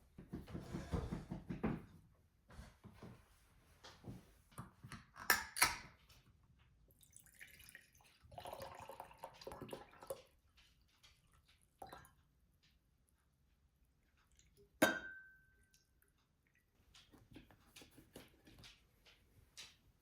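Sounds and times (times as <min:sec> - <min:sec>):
water running: 0:06.9 - 0:12.2.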